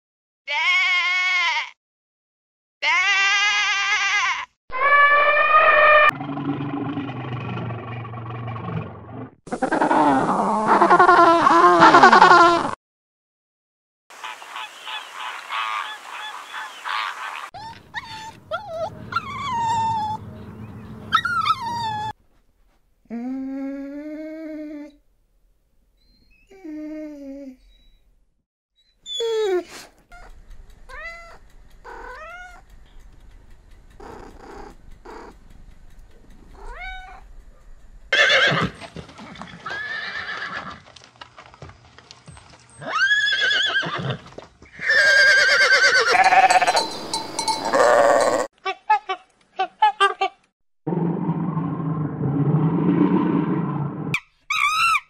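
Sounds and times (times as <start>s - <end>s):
cat meowing: 0.5s - 1.7s, 2.8s - 6.1s, 17.6s - 20.2s, 30.9s - 32.6s, 34.0s - 35.3s, 36.6s - 37.3s
harsh animal calls: 2.8s - 12.4s, 14.6s - 22.2s, 30.1s - 32.7s, 33.9s - 35.4s, 36.2s - 37.3s
small dog whining: 17.6s - 20.2s, 21.1s - 22.2s, 26.0s - 28.1s, 28.8s - 32.6s, 34.0s - 35.3s, 36.6s - 37.3s, 54.5s - 55.0s.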